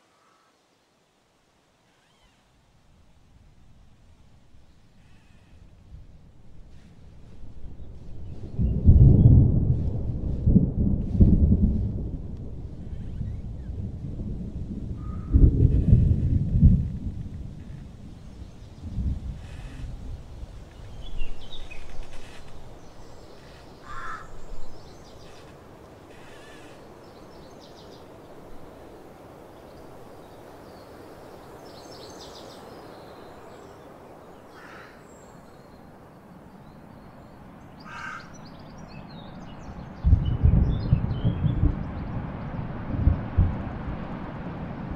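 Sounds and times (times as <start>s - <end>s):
outdoor background hiss: 0.0s - 44.9s
loud low rumble: 7.7s - 17.8s
harsh bird calls: 17.6s - 20.2s, 21.0s - 28.0s, 32.2s - 35.9s, 36.6s - 42.0s.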